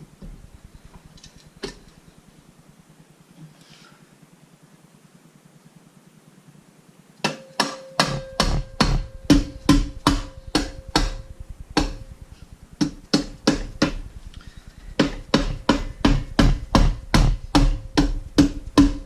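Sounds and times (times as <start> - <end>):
hammer tapping on metal: 7.2 - 12.2, 12.8 - 14.0, 14.9 - 19.0.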